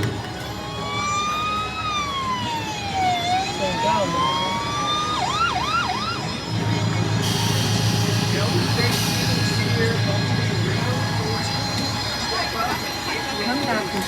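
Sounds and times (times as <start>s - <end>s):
electronic police siren: 0.4s - 8.8s.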